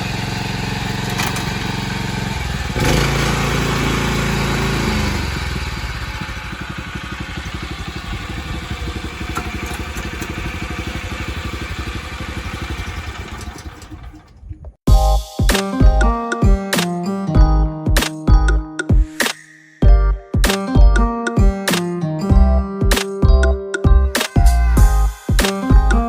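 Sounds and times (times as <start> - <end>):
tiller petrol engine running: 0.0 - 14.8.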